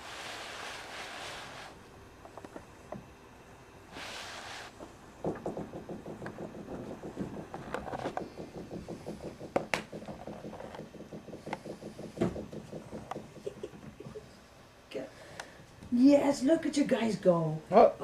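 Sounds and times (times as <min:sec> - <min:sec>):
knock: 0:05.2 - 0:14.0.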